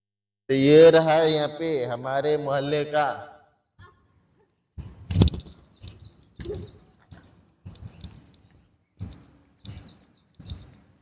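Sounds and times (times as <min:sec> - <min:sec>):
small bird chirping: 0:03.8 - 0:11.0
footsteps on stony dirt path: 0:04.8 - 0:11.0.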